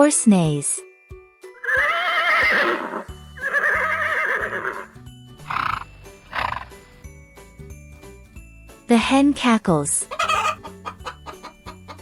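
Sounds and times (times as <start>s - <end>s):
light background music: 0.0s - 12.0s
horse neighing: 1.6s - 6.8s, 10.1s - 12.0s.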